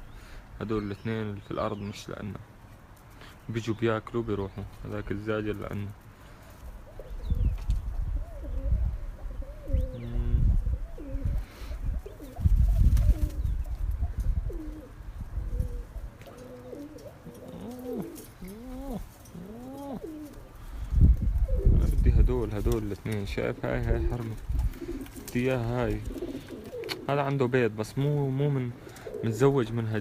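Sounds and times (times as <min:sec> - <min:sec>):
pigeons cooing: 0:06.1 - 0:30.0.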